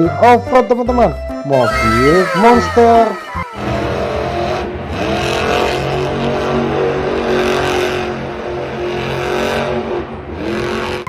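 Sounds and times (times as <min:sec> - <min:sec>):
truck engine revving: 0:03.3 - 0:11.0.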